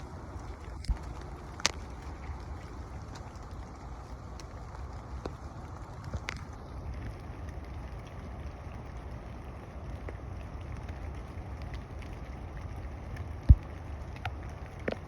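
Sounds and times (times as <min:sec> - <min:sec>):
light taps of rain: 0:00.0 - 0:15.0.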